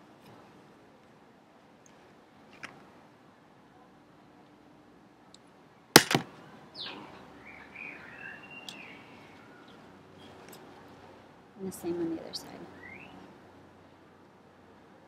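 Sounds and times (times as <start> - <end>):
bird calling: 6.8 - 9.8, 12.8 - 13.2.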